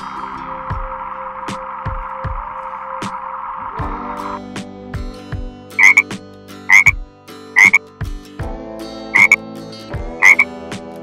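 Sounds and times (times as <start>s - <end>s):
frog croaking: 5.8s - 6.1s, 6.7s - 7.0s, 7.6s - 7.8s, 9.1s - 9.4s, 10.2s - 10.4s.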